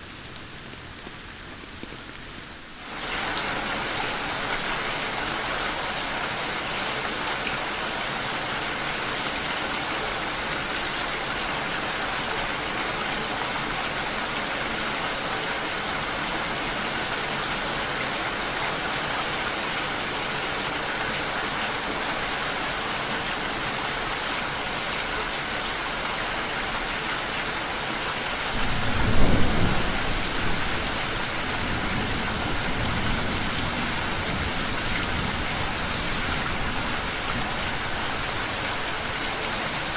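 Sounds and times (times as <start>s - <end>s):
steady rain falling: 0.0s - 39.9s
thunder rumbling: 28.5s - 39.1s.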